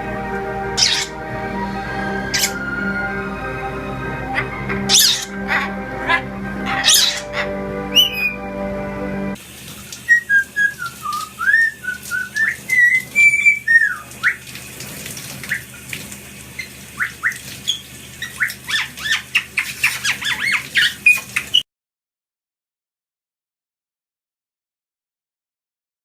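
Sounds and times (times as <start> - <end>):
parrot whistling: 0.7 - 8.6, 10.1 - 14.5, 16.6 - 21.6
parrot chirping: 0.7 - 8.8, 10.1 - 14.5, 16.6 - 21.6.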